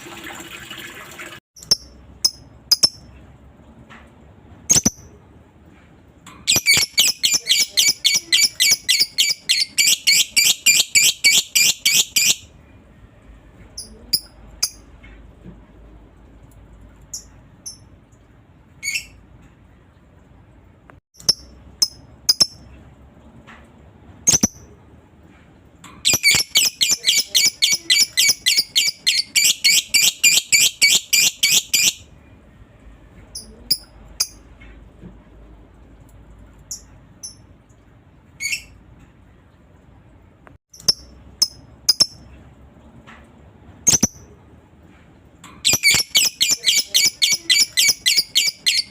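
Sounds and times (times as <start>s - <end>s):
lovebird chattering trill: 6.5s - 12.4s, 26.1s - 32.0s, 45.7s - 48.9s.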